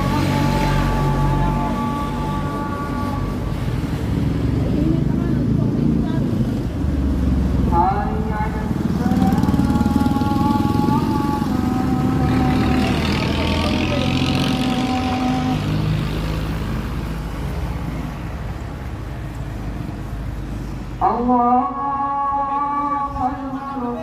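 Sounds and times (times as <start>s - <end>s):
vehicle engine running: 0.0s - 17.2s
rushing noise of passing vehicle: 0.0s - 24.0s.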